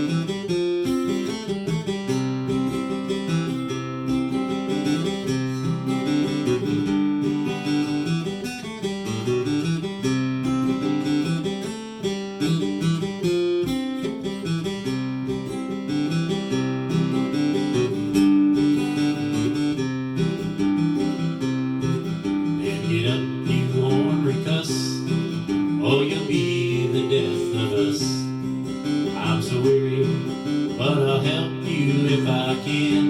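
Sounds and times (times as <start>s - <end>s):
acoustic guitar strummed and picked: 0.0s - 33.0s.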